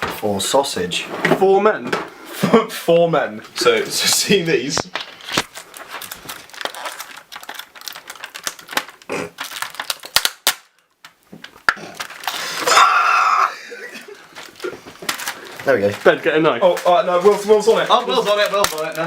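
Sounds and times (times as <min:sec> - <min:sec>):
clicks and rustles of handling: 0:03.4 - 0:12.4, 0:14.3 - 0:19.0.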